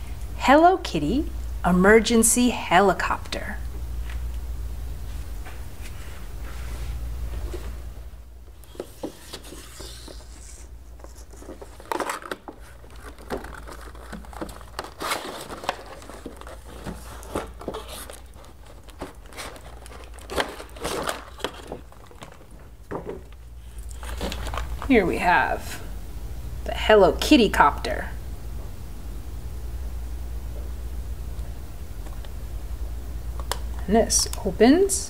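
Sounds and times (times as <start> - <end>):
plastic packaging crinkling: 8.6 - 25.1
plastic parts clicking: 11.4 - 22.6.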